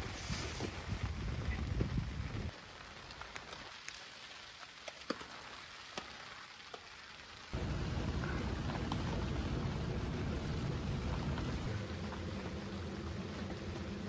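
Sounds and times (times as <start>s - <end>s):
rain hissing on a tent: 0.0s - 14.0s
raindrops ticking: 1.1s - 14.0s
low rumble: 7.6s - 14.0s.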